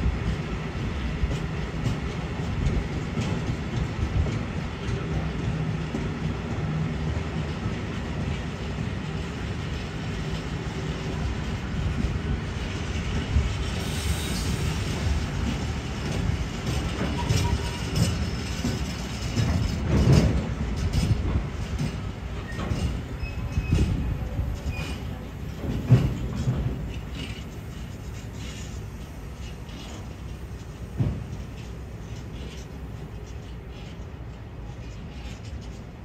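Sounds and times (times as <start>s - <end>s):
train rumbling past: 0.0s - 36.0s
wheels clacking over rail joints: 0.2s - 36.0s.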